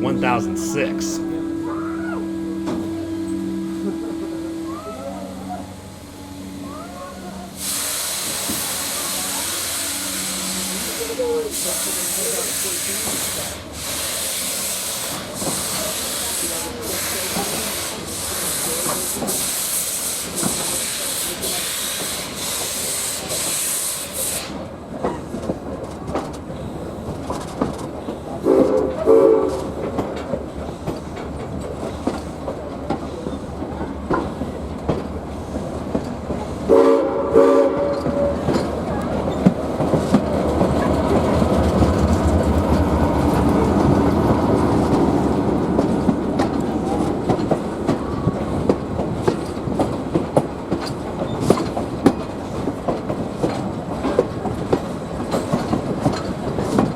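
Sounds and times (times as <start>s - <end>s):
steam whistle blasts: 0.0s - 11.2s, 28.4s - 29.6s, 36.7s - 38.6s
steam hissing: 7.6s - 24.6s
train wheels clicking over rail joints: 11.6s - 36.7s, 37.8s - 56.9s.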